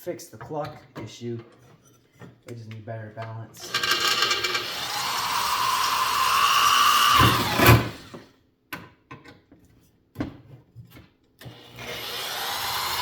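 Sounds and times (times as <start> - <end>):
electric drill whining: 3.6 - 8.3, 11.5 - 13.0.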